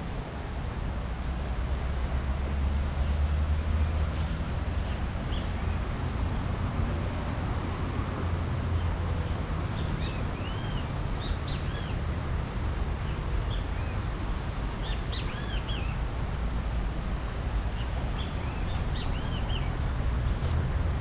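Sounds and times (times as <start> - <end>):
small birds chirping: 17.8 - 19.8.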